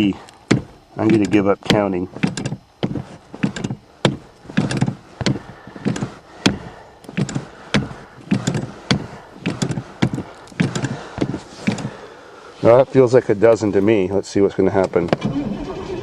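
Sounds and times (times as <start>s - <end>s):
accelerator pedal knocking: 0.4s - 12.0s.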